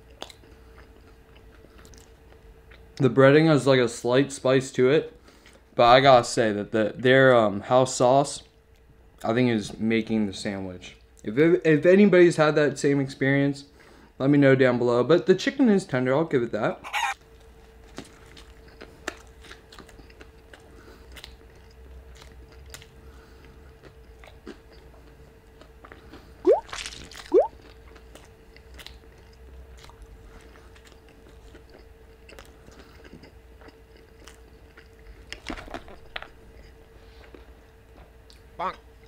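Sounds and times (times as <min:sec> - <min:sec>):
chewing crunchy food: 0:00.0 - 0:03.0, 0:17.2 - 0:39.0.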